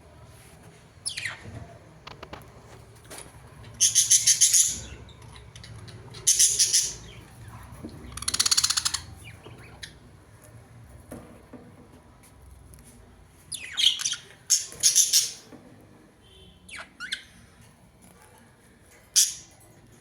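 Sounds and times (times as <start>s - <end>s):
faint bird chirps: 16.2s - 17.4s.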